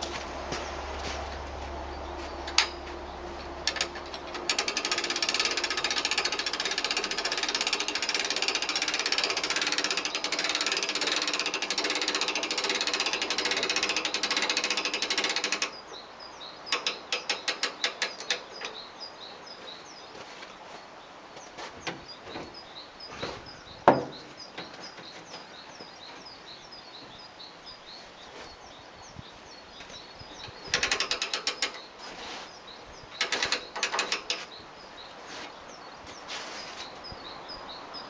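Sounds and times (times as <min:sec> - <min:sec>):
ratchet clicking: 0:03.6 - 0:15.8, 0:16.7 - 0:18.8, 0:30.7 - 0:31.8, 0:33.2 - 0:34.5.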